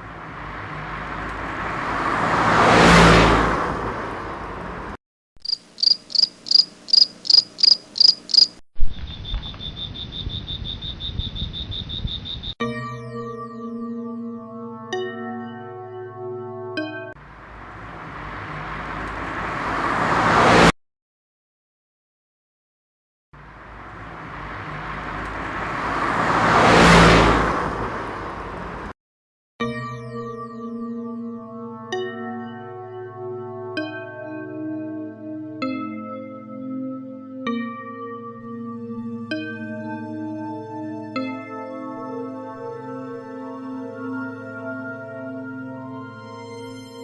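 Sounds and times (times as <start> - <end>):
vehicle passing close by: 0.0 - 5.0, 17.2 - 20.7, 23.4 - 28.9
crickets chirping: 5.4 - 12.6.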